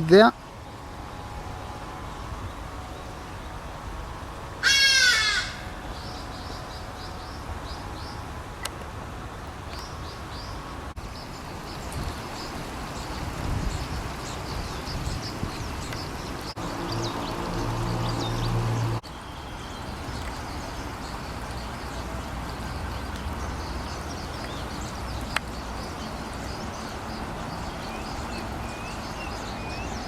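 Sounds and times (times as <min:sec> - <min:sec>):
large bird harsh caw: 0:04.6 - 0:05.8
small birds chirping: 0:09.7 - 0:30.0.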